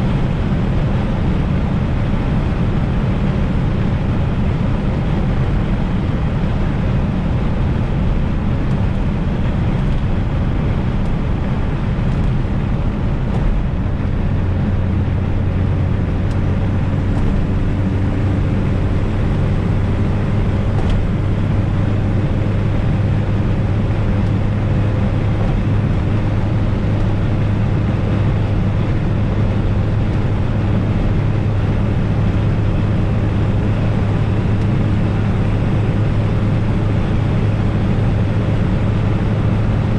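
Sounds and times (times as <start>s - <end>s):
car engine droning: 0.0s - 39.9s
road noise: 0.0s - 39.9s.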